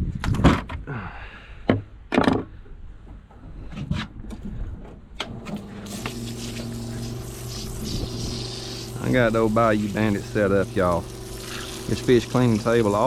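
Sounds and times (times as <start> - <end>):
steady motor hum: 5.2 - 13.0.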